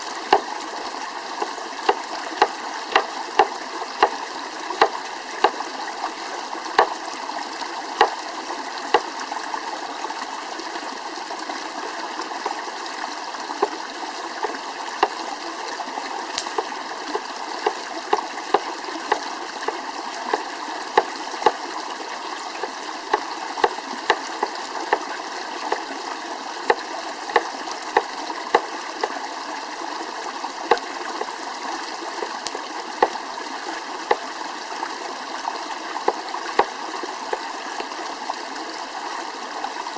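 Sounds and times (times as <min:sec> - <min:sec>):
campfire crackling and popping: 0:16.3 - 0:17.8.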